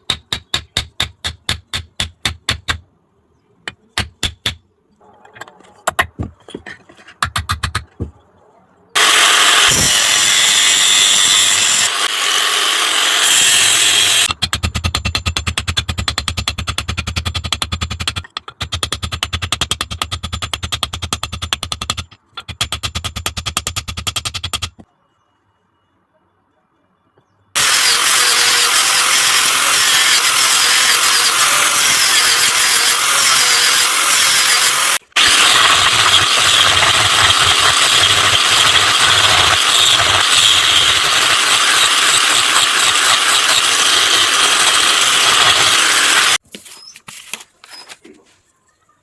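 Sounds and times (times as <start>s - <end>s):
power tool grinding metal: 9.0s - 14.3s, 27.6s - 46.4s.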